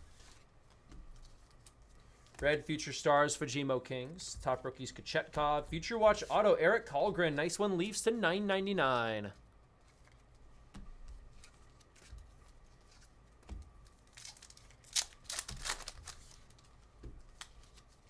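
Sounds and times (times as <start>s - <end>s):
cards clicking and rustling: 9.8s - 18.0s
card pack wrapper tearing: 14.1s - 16.6s.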